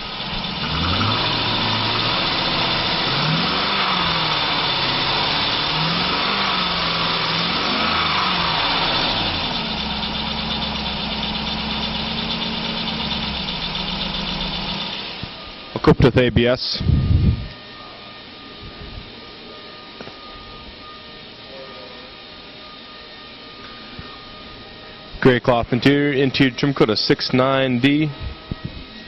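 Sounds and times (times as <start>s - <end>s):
truck engine revving and idling: 0.0s - 16.2s.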